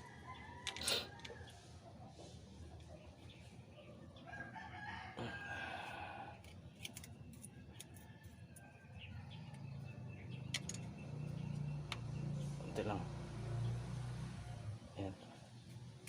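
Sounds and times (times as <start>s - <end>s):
rooster crowing: 0.0s - 1.6s, 4.2s - 6.4s.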